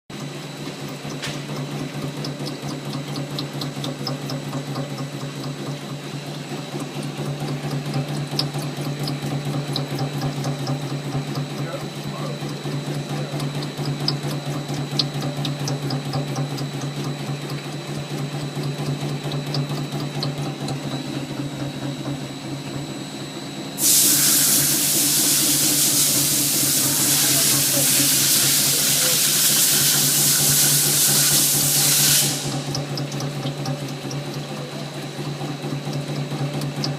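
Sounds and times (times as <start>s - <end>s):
machine hum with high whine: 0.2s - 36.9s
loud steady hiss: 23.8s - 32.6s.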